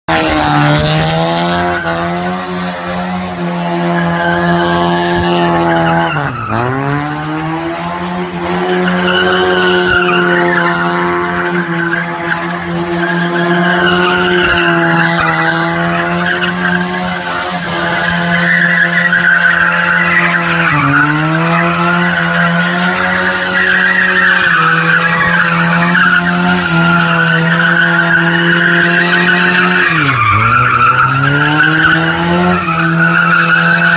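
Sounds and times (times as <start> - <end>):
car engine at high revs: 0.0 - 33.9
tyre squeal: 8.6 - 33.9.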